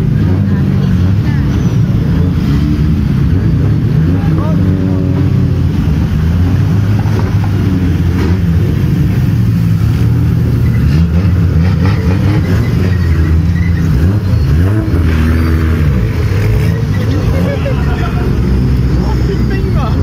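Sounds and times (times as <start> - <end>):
car engines passing at low revs: 0.0 - 20.0
engine throttle blips: 0.0 - 20.0.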